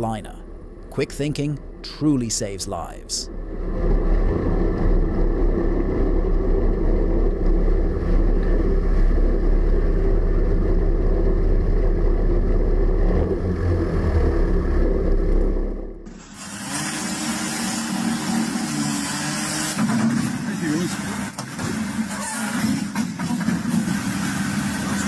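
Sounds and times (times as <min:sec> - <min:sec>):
engine rumble with deep drone: 0:00.0 - 0:02.2, 0:03.2 - 0:16.3.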